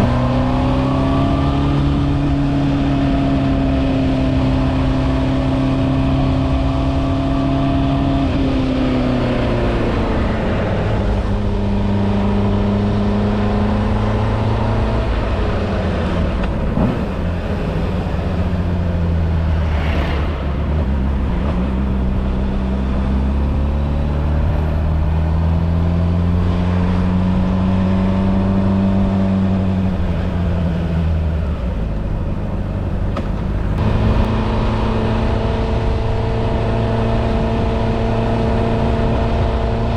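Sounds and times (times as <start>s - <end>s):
motorcycle engine running: 26.3s - 39.9s.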